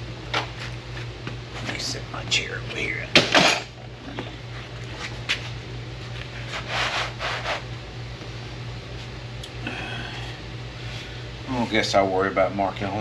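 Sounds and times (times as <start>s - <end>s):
low background hum: 0.0s - 13.0s
rubbing and scraping: 6.4s - 7.7s.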